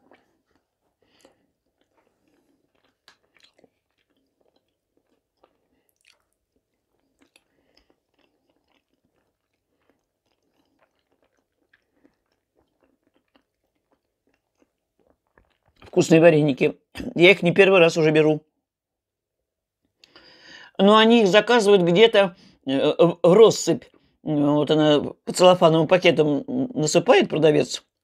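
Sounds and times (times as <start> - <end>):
person chewing: 0.0 - 16.0.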